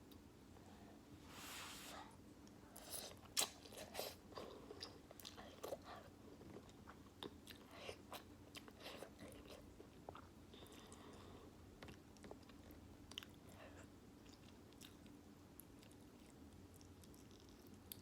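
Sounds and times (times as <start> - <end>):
wet chewing and lip smacks: 14.2 - 18.0.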